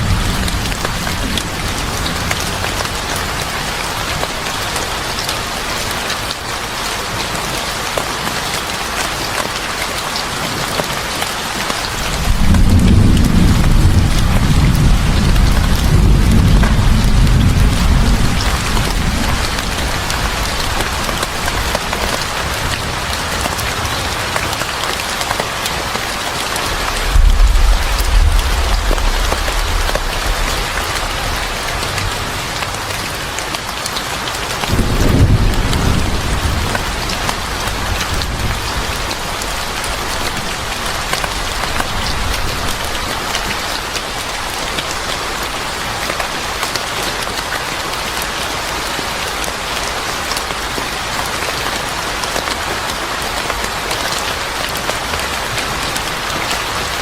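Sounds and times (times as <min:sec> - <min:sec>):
thunder rumbles: 0:00.0 - 0:04.3, 0:11.9 - 0:24.3, 0:26.5 - 0:33.5, 0:34.7 - 0:43.2
heavy rain: 0:00.0 - 0:57.0.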